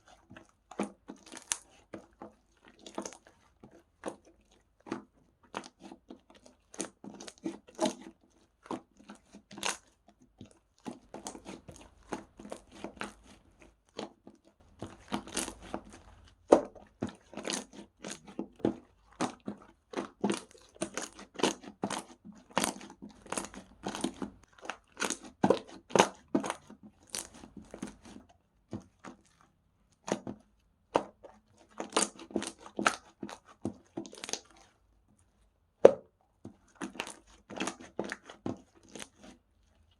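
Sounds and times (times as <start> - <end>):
slime crackling and popping: 10.9 - 18.4, 19.2 - 28.2.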